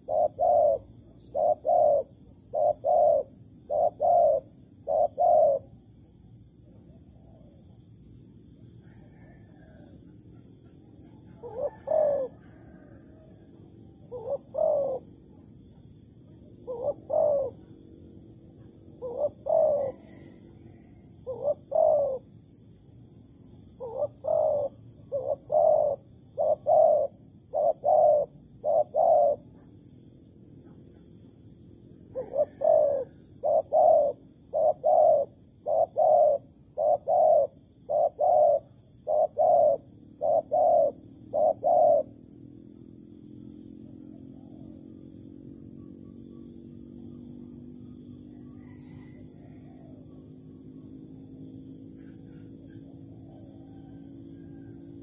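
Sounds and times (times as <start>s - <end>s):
dove cooing: 0.0s - 6.2s, 10.7s - 22.6s, 23.6s - 29.8s, 32.1s - 42.3s, 48.0s - 50.4s.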